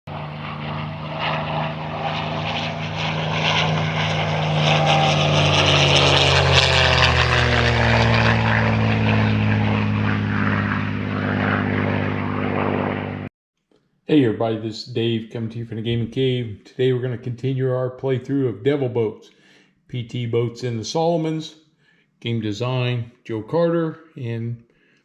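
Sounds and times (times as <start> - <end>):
piston engines droning past: 0.1 - 13.3.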